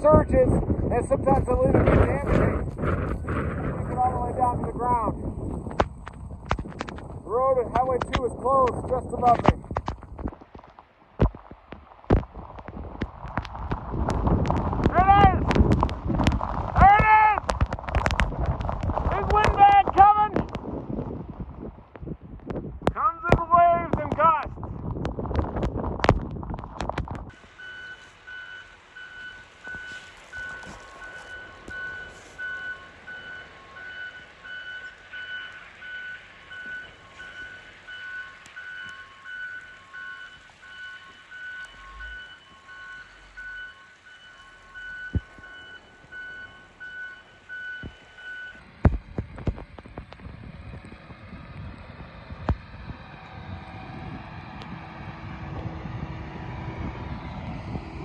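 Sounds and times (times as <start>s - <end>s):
wind buffeting microphone: 0.0s - 27.4s, 44.9s - 58.0s
vehicle backup alarm beeping: 27.4s - 48.7s.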